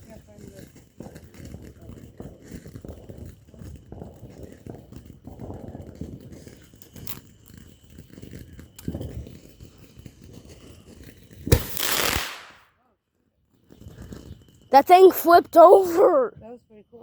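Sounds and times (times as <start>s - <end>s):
firework rumbling and crackling: 0.0s - 12.6s
firework bang: 11.5s - 12.6s.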